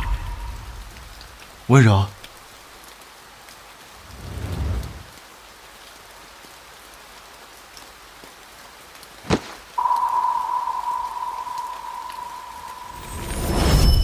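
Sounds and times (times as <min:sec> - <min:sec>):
steady rain falling: 0:00.0 - 0:14.0
low rumble: 0:04.0 - 0:05.1.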